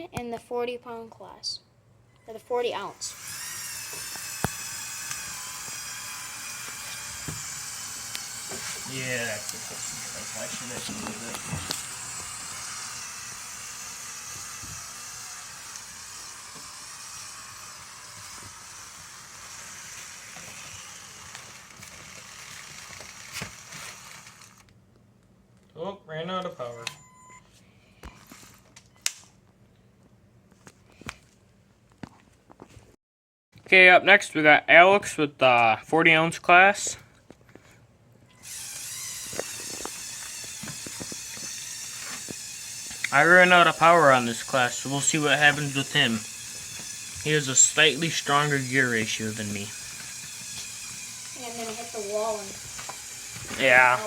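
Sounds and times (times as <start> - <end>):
toy electric motor whirring: 2.8 - 24.7, 28.1 - 29.2, 38.3 - 54.0.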